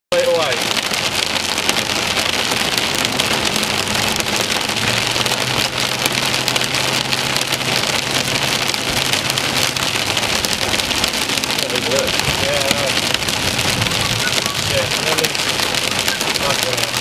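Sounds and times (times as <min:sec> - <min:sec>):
car low hum: 0:00.1 - 0:17.0
heavy rain on a car: 0:00.1 - 0:17.0.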